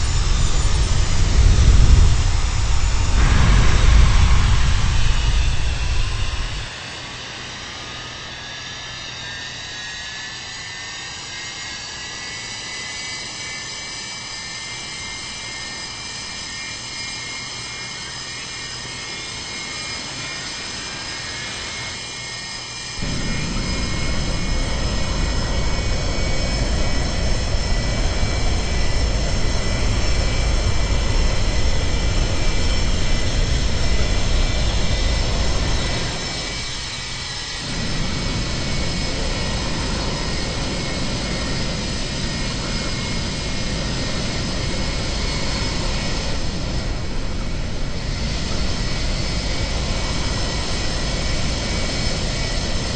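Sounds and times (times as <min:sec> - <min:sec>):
loud deep rumble: 0:00.0 - 0:06.8, 0:23.0 - 0:52.9
jet engines spooling up: 0:00.0 - 0:52.9.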